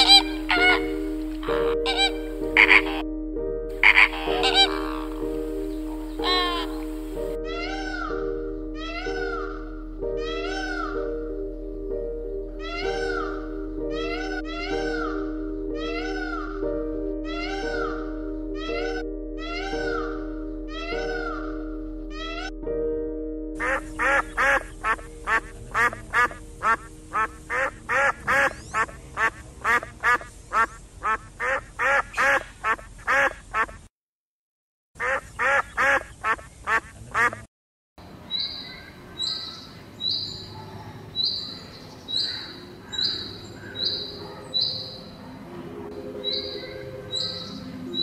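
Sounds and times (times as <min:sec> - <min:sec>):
duck quacking: 0:00.0 - 0:03.0, 0:03.8 - 0:05.2, 0:05.9 - 0:06.9, 0:12.7 - 0:16.6, 0:17.3 - 0:20.2, 0:20.8 - 0:22.5, 0:23.6 - 0:33.9, 0:35.0 - 0:37.5.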